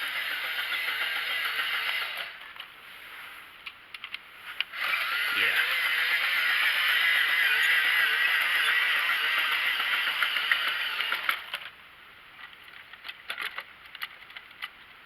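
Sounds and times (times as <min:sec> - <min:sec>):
toy train motor whirring: 0:00.0 - 0:02.6, 0:04.5 - 0:11.8
small clicks and rattles: 0:08.2 - 0:11.8, 0:12.4 - 0:15.0.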